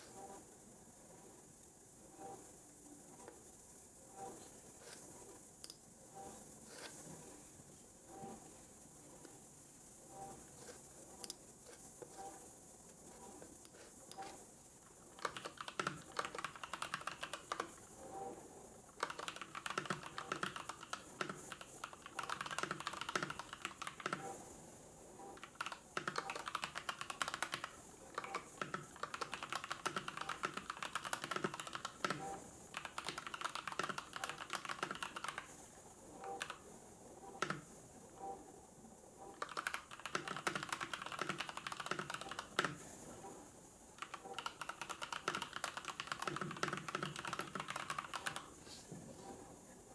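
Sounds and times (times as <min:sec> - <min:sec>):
typing on computer keyboard: 0:14.1 - 0:18.0, 0:18.9 - 0:24.4, 0:25.3 - 0:35.6, 0:36.2 - 0:36.7, 0:37.3 - 0:37.7, 0:39.3 - 0:43.0, 0:44.0 - 0:48.6.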